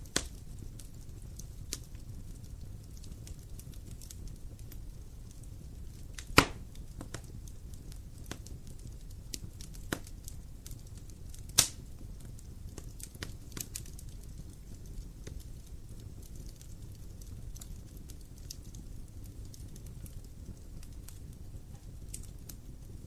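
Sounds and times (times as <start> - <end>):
wood fire crackling: 0.0 - 23.0
loud sharp pops: 6.2 - 7.2.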